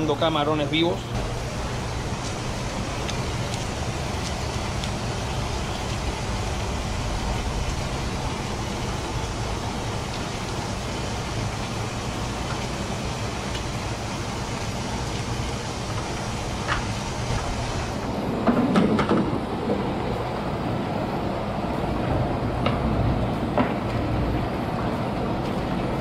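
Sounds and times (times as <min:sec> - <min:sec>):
aerated water rushing and bubbling: 0:00.0 - 0:26.0
low pump hum: 0:00.0 - 0:26.0.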